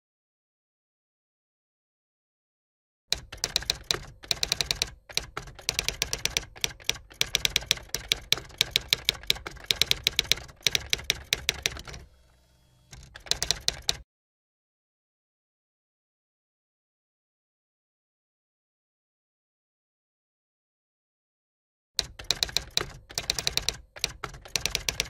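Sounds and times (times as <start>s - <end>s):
keyboard typing clicks: 3.1s - 12.1s, 12.9s - 14.0s, 22.0s - 25.0s.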